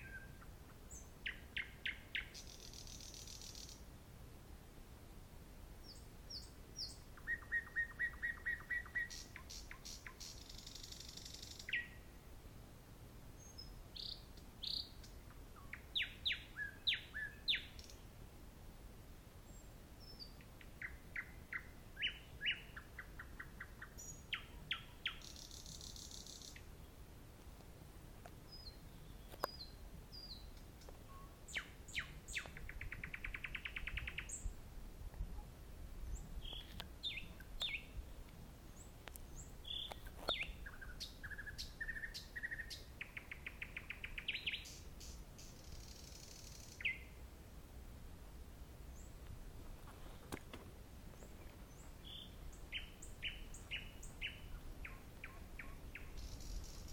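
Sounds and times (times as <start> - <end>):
nightingale singing: 0.0 - 3.9, 5.8 - 12.1, 13.4 - 18.1, 19.5 - 26.9, 28.5 - 34.6, 36.1 - 47.2, 51.1 - 56.9.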